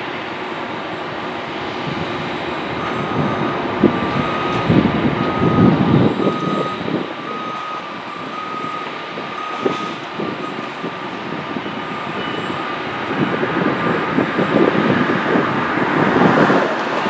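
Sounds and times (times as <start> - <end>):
heavy machinery rumbling: 0.0 - 17.0
back-up alarm beeping: 2.7 - 14.7.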